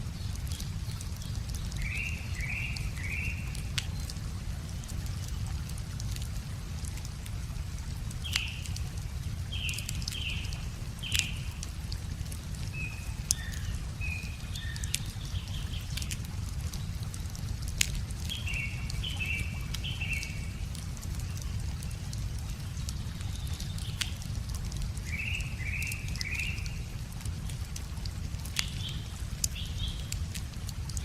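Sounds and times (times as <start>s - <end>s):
flowing water: 0.0s - 31.0s
wood fire crackling: 0.0s - 31.0s
songbird calling: 1.8s - 3.5s, 25.1s - 26.8s.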